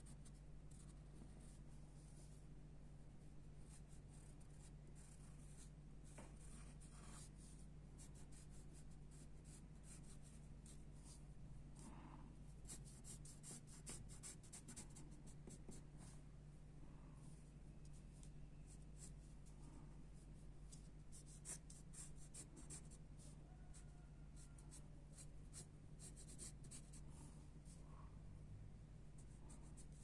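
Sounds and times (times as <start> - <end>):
pencil scratching on paper: 3.7 - 11.2, 12.6 - 16.1, 20.7 - 27.0, 29.2 - 30.0.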